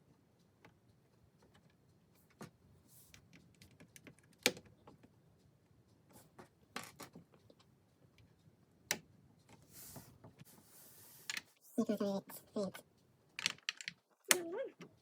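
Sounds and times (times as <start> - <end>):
plastic bricks clicking: 13.4 - 14.5.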